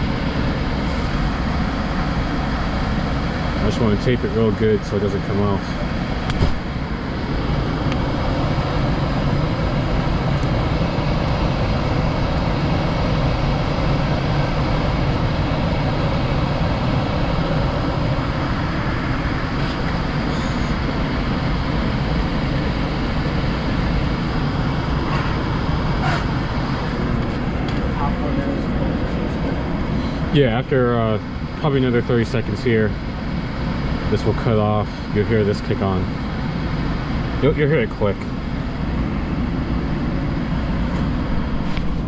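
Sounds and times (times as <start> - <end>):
furnace blower fan running: 0.0 - 42.0.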